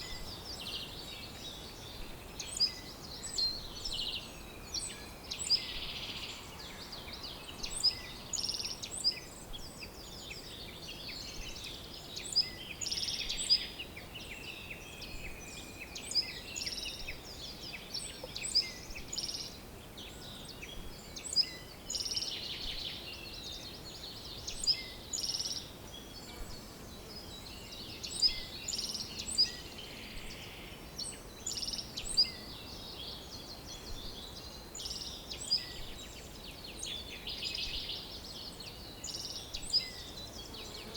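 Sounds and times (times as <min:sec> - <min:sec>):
faint background hiss: 0:00.0 - 0:40.9
songbirds chirping and trilling: 0:00.0 - 0:40.9.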